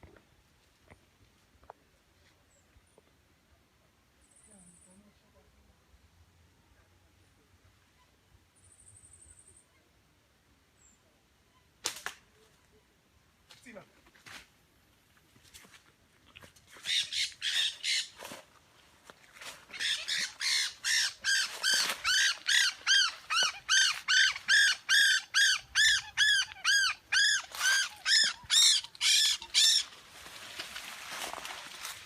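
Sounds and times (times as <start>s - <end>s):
bird squawking: 16.8s - 18.1s, 19.7s - 30.0s.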